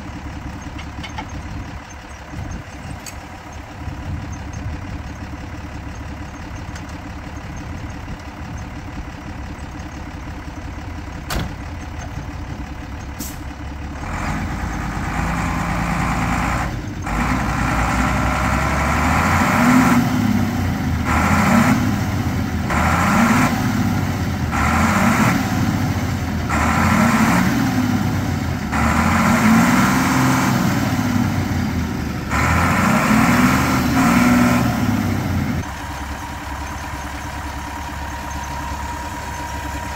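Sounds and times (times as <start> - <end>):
vehicle engine revving: 14.0 - 35.7.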